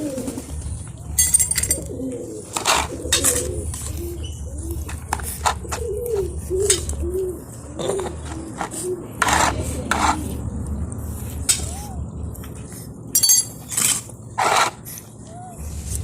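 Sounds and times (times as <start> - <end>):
pigeons cooing: 0.0 - 12.7, 14.2 - 16.0
scraping and clattering: 0.7 - 4.1, 7.8 - 10.4, 12.5 - 15.0.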